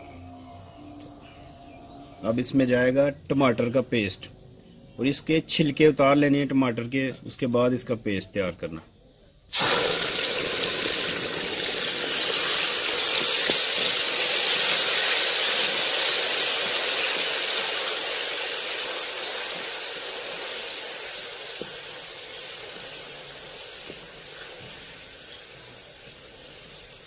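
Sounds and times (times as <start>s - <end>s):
paste sizzling in hot oil: 9.5s - 27.0s.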